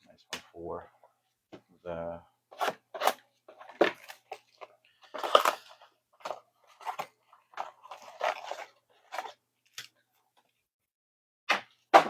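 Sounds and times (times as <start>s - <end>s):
foil wrappers and cards crinkling: 3.0s - 9.9s.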